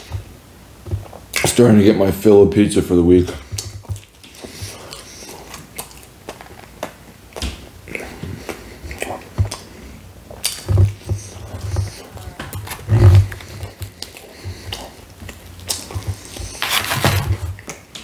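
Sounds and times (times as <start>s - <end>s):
wet mouth clicks and smacks: 3.6s - 9.7s, 13.6s - 16.6s.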